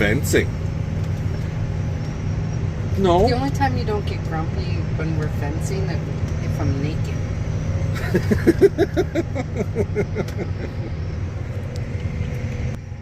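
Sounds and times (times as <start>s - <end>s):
vehicle running rumble: 0.0s - 13.0s
person laughing: 7.9s - 11.0s.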